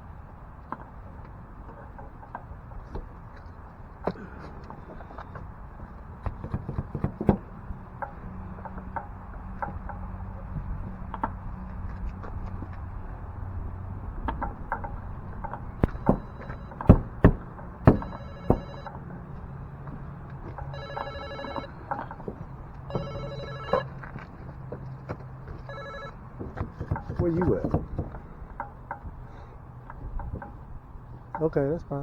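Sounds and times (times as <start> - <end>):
sharp knocks and taps: 6.2 - 12.8, 14.2 - 19.0, 19.9 - 29.2, 29.8 - 30.6
mobile phone ringtone: 15.8 - 16.9, 17.9 - 19.1, 20.6 - 22.1, 22.9 - 24.1, 25.7 - 26.2.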